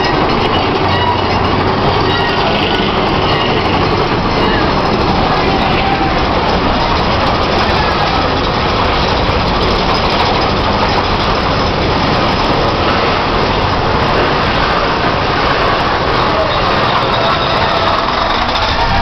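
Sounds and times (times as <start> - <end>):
roller coaster train rumbling: 0.0 - 19.0.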